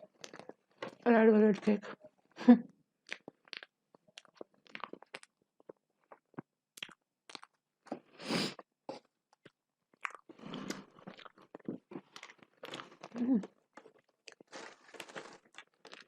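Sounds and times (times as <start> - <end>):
food crunch: 0.0 - 1.0, 3.0 - 8.1, 9.3 - 16.0
person chewing food: 0.0 - 1.0, 3.0 - 16.0.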